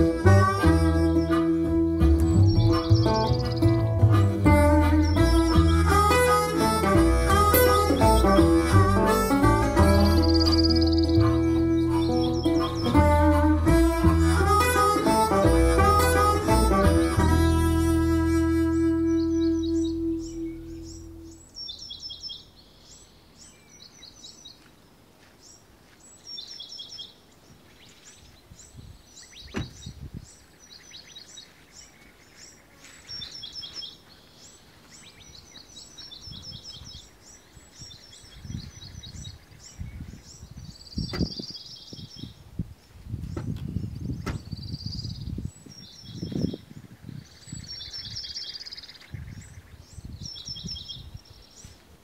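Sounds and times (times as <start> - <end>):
low thuds: 0.0 - 18.0, 29.5 - 30.0, 41.0 - 41.5, 43.2 - 44.7
birds chirping: 0.0 - 52.0.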